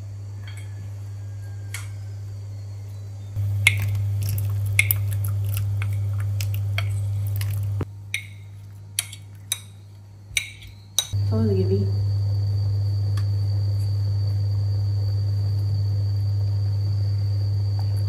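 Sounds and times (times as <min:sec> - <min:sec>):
induction hob hum: 0:00.0 - 0:18.0
boiling water: 0:03.4 - 0:10.5, 0:11.1 - 0:18.0.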